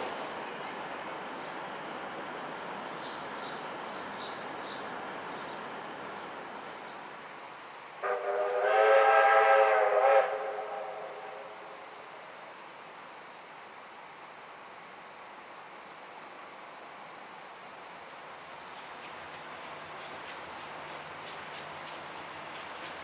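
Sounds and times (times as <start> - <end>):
train rumbling past: 0.0 - 23.0
train horn blast: 8.0 - 11.8.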